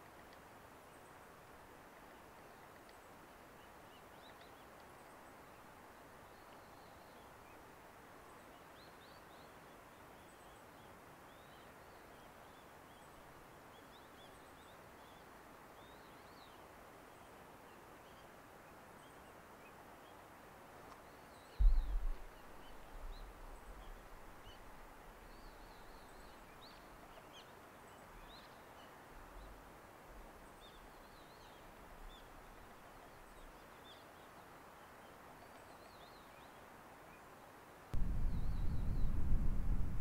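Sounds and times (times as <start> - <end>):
distant high bird chirps: 21.5 - 24.7.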